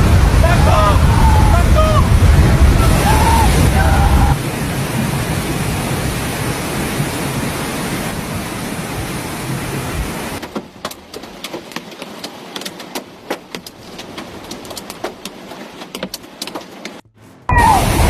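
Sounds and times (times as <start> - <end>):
heavy rain and hail: 0.0 - 13.0.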